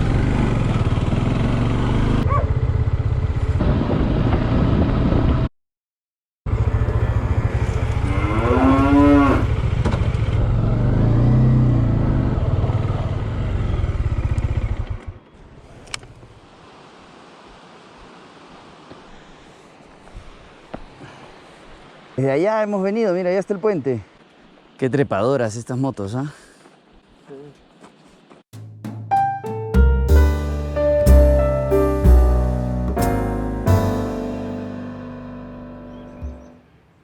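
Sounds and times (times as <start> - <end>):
motorcycle engine running: 0.0 - 5.4, 6.5 - 15.2
cow mooing: 6.6 - 9.6.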